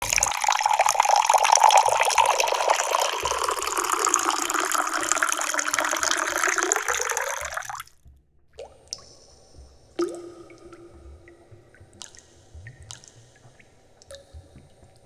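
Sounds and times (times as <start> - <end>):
drip plinking into tea: 0.0 - 7.8, 10.0 - 15.0
tea pouring into a pitcher: 0.0 - 7.8.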